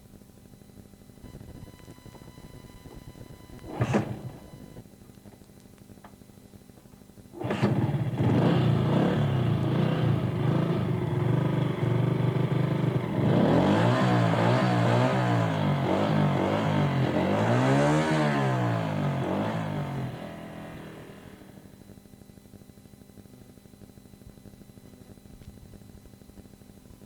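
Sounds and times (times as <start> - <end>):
vehicle engine revving: 7.4 - 21.6.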